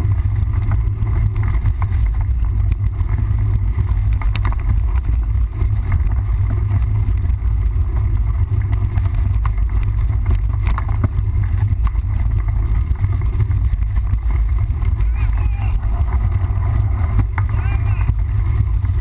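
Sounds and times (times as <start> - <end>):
bike knocks and rattles: 0.0 - 19.0
wind buffeting microphone: 0.0 - 19.0
faint voice: 15.0 - 16.0, 17.5 - 18.1.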